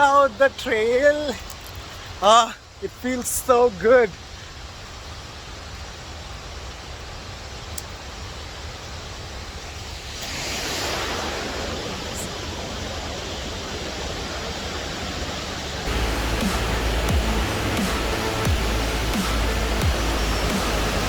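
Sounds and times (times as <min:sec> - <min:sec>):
waterfall and river rushing: 0:00.0 - 0:21.0
music with heavy beat: 0:15.9 - 0:21.0.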